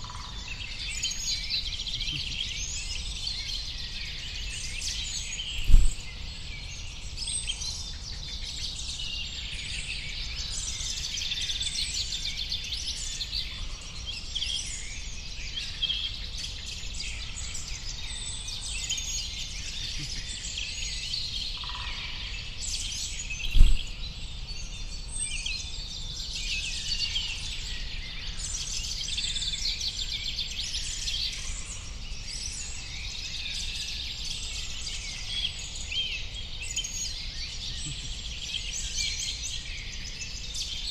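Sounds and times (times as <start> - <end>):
small birds chirping: 0.0 - 40.9
brief low thump: 5.6 - 6.0, 23.4 - 23.9.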